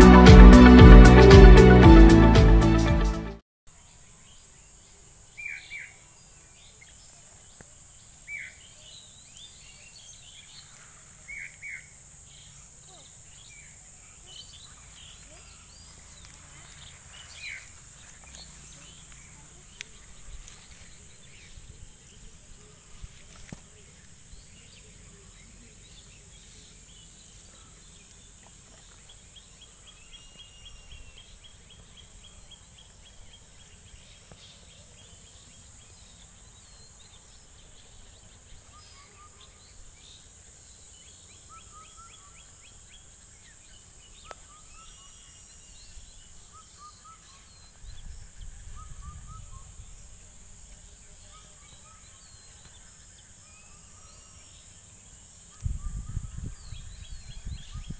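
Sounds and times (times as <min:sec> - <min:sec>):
insect drone: 0:03.7 - 0:57.9
birds chirping: 0:08.0 - 0:50.0.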